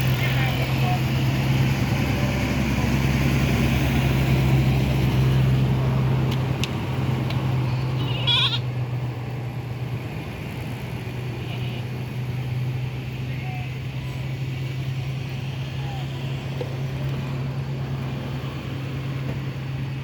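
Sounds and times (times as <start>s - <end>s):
goat bleating: 7.6s - 8.7s, 11.4s - 12.0s.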